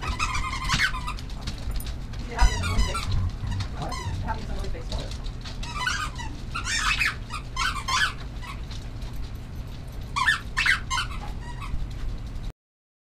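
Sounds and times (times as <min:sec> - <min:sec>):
small animals squeaking: 0:00.0 - 0:01.3, 0:02.2 - 0:08.6, 0:10.1 - 0:11.8
low steady hum: 0:00.0 - 0:12.5.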